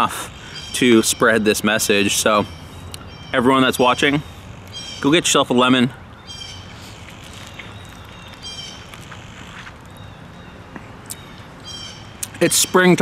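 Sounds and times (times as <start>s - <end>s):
steady outdoor hum: 0.0s - 13.0s
short bird calls: 6.2s - 12.9s.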